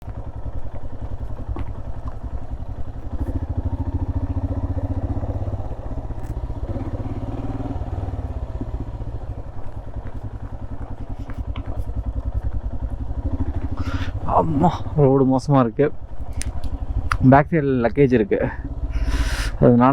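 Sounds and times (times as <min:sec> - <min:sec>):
motorcycle engine running: 0:00.0 - 0:19.9
light clicks and rattles: 0:09.5 - 0:12.6.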